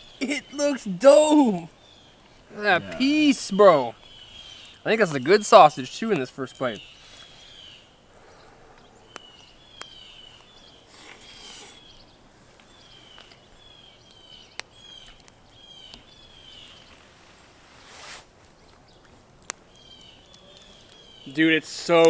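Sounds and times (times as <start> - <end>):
bird chirping high falling calls: 0.0 - 10.9.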